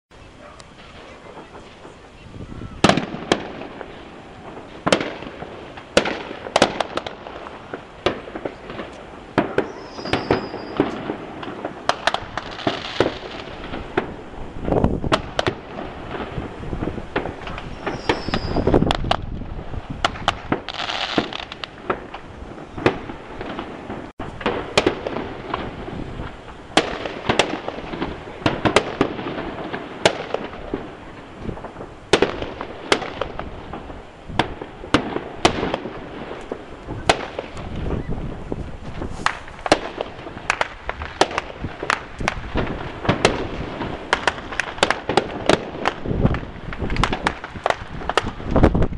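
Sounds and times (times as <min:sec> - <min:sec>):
crackling hiss: 0:00.1 - 0:48.9
fireworks bangs and cracks: 0:00.2 - 0:48.9.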